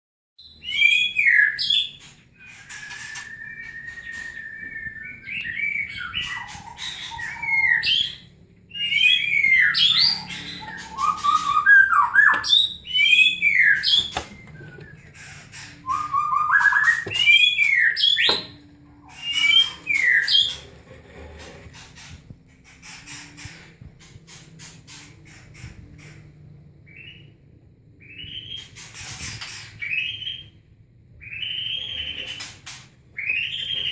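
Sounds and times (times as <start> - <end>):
bird chirps and whistles: 0.4 - 20.6, 28.0 - 30.6, 31.2 - 32.5.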